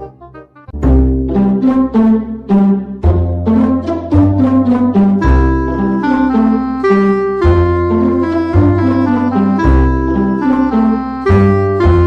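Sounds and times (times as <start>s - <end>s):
jazzy tune with horn lead: 3.1s - 12.0s.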